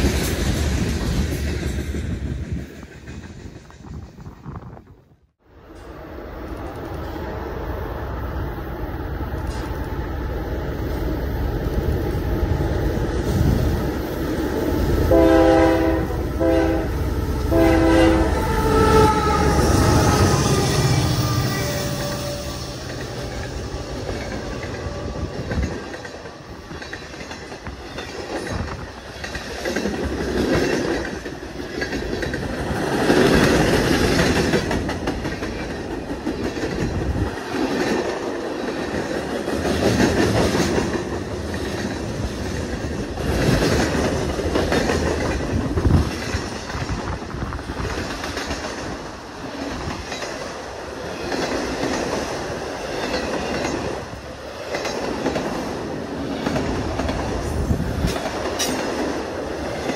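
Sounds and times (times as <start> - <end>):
train wheels clattering on rails: 0.0 - 4.8, 21.8 - 59.9.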